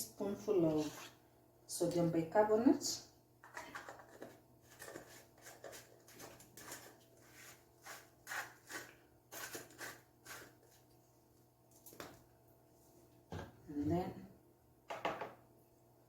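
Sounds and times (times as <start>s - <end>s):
teaspoon scraping powder: 3.8s - 10.8s.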